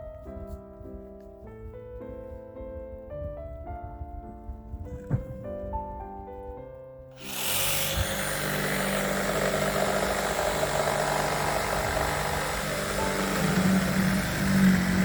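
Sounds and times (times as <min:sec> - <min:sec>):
piano music: 0:00.0 - 0:15.0
loud machine noise: 0:07.2 - 0:15.0.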